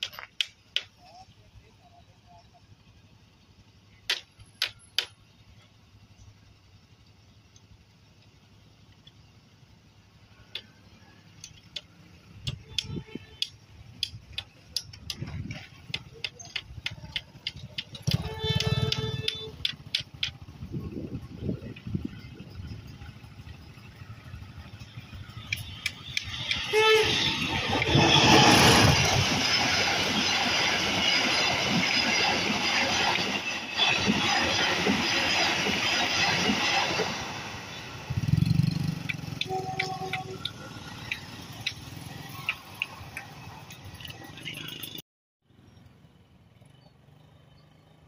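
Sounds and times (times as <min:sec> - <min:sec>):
approaching train rumble: 0:00.1 - 0:48.0
diesel locomotive passing: 0:00.4 - 0:45.0
rails clicking: 0:11.4 - 0:20.6.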